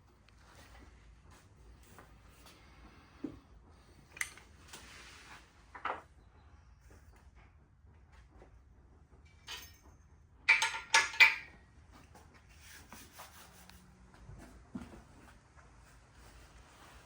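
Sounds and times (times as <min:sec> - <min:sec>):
metal pieces clinking: 0:09.4 - 0:09.9, 0:10.5 - 0:11.5
faint taps and rustles: 0:14.0 - 0:16.4.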